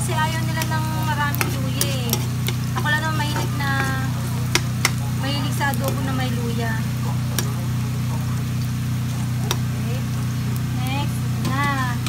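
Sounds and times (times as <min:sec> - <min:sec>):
metal spatula scraping pan: 0:00.0 - 0:06.2
onions frying in oil: 0:00.0 - 0:12.0
steady low hum: 0:00.0 - 0:12.0.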